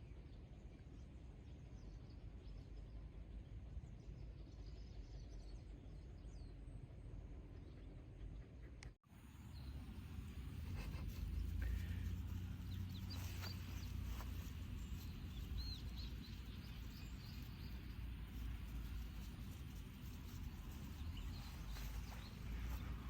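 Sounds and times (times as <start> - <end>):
small birds chirping: 9.1 - 23.0
wind rumbling on microphone: 9.6 - 23.0.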